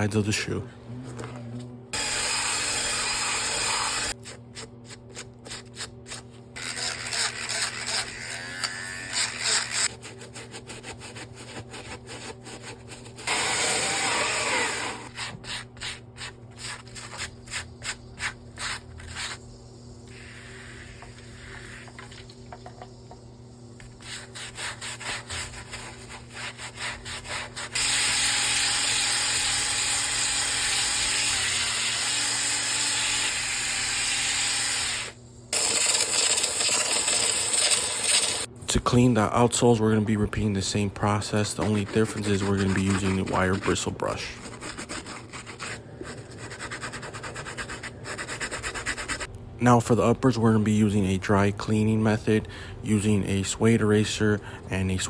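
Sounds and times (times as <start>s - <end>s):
brush scrubbing a sneaker: 9.1s - 13.4s, 15.0s - 19.4s, 23.8s - 28.1s, 41.3s - 49.3s.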